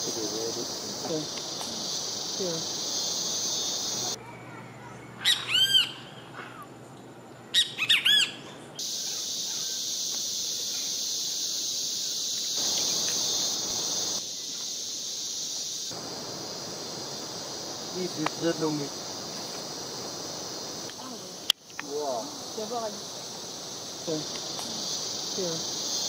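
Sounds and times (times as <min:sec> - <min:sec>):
insect buzz: 0:00.0 - 0:04.2, 0:04.8 - 0:26.0
bird calling ringing notes: 0:03.6 - 0:06.8, 0:07.5 - 0:09.8.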